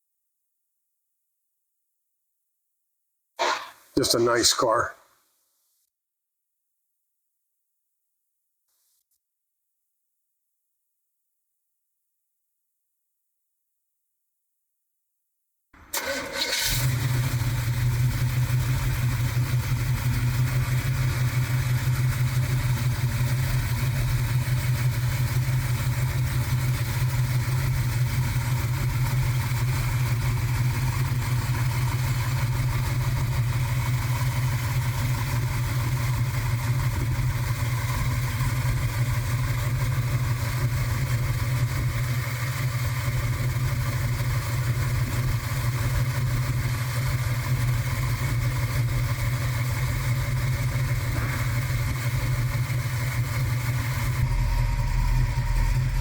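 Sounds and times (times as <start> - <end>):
car engine starting and idling: 15.9 - 56.0.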